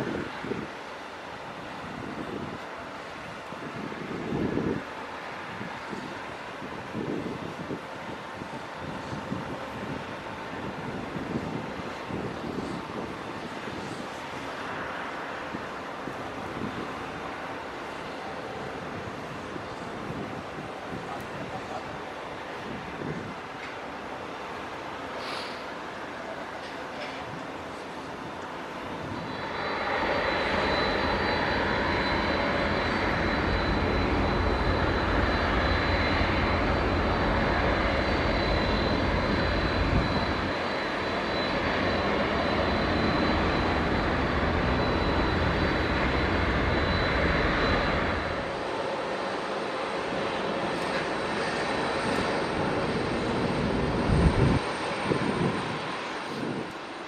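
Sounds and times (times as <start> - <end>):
jet engines roaring: 0.0 - 57.0
high whine: 28.9 - 49.3.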